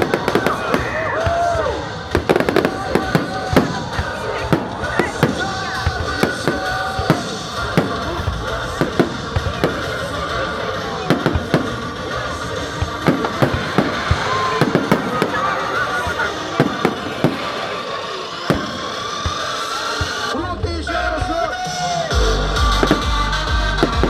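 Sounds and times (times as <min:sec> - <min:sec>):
fireworks bangs and pops: 0:00.0 - 0:22.0, 0:22.7 - 0:24.0
music with a tune: 0:18.5 - 0:24.0.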